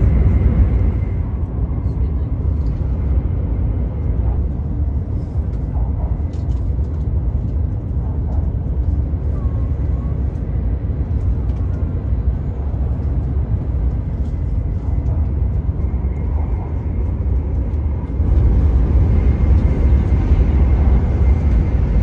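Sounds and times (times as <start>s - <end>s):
train cabin low rumble: 0.0s - 22.0s.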